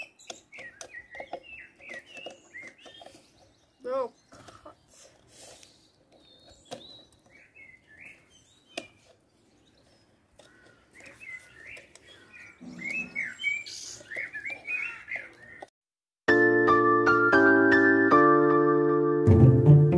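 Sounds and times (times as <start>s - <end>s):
small birds chirping: 0.0s - 15.7s.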